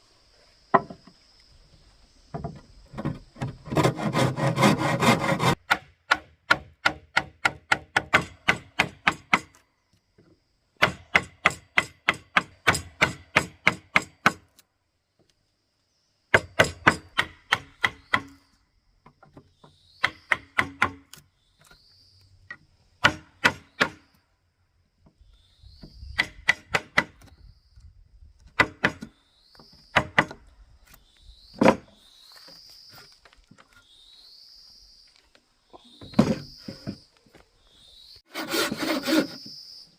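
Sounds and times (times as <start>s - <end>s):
hand tool striking wood: 2.4s - 9.6s, 10.8s - 14.5s, 16.3s - 18.4s, 19.1s - 21.2s, 23.0s - 24.0s, 26.2s - 27.3s, 28.6s - 29.1s, 29.9s - 30.4s.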